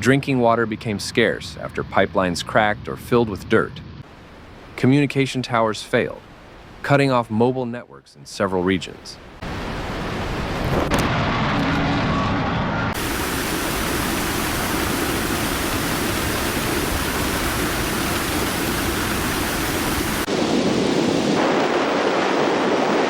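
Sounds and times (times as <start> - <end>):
floodwater rushing: 13.0 - 20.3.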